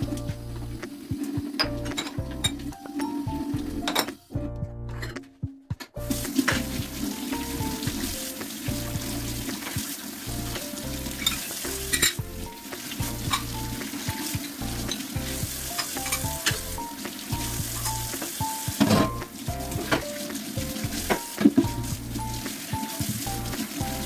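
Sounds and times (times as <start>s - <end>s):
food sizzling in a pan: 6.0s - 24.0s.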